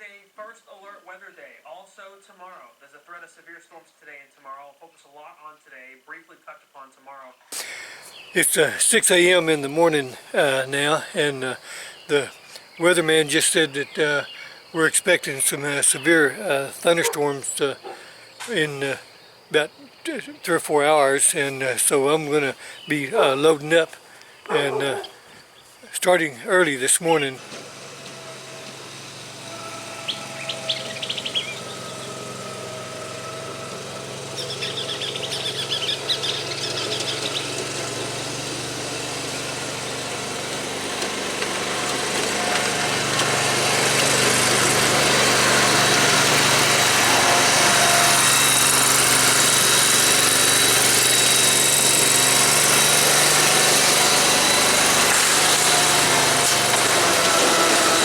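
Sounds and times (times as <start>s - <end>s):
birds chirping: 7.2s - 58.0s
engine running: 8.2s - 23.8s, 26.1s - 58.0s.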